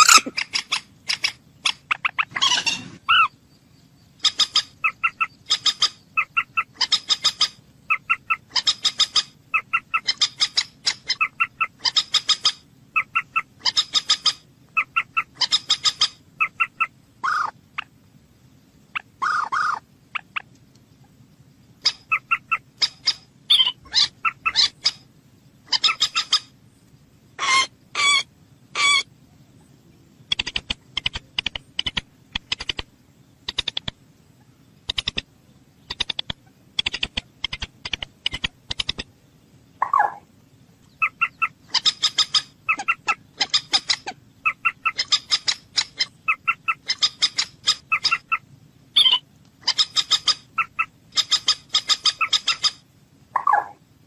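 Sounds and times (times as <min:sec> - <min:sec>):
bird calling harsh notes: 0:00.0 - 0:03.4, 0:19.0 - 0:20.5, 0:21.8 - 0:26.5, 0:27.4 - 0:29.1, 0:40.9 - 0:52.8.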